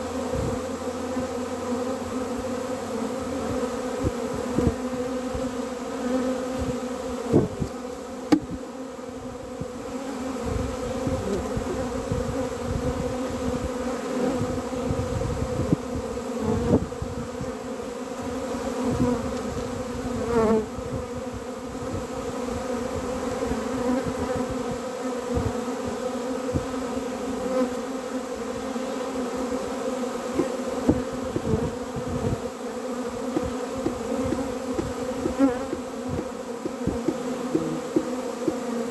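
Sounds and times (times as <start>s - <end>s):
bees buzzing: 0.0s - 38.9s
sharp knocks: 8.3s - 8.6s, 33.3s - 38.9s.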